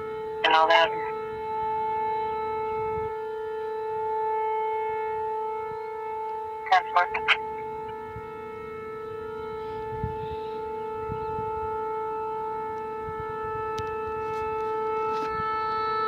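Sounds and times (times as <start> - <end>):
tornado warning siren: 0.0 - 16.0
radio speech: 0.4 - 1.2, 6.6 - 7.7.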